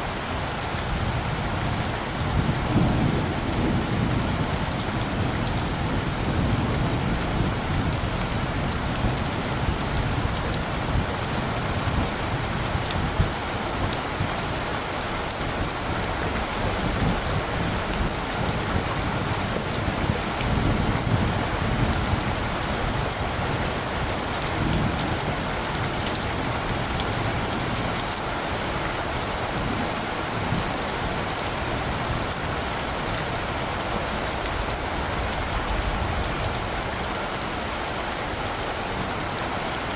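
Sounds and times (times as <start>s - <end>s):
steady rain with drops ticking: 0.0s - 39.9s
distant thunder rumble: 0.9s - 14.4s.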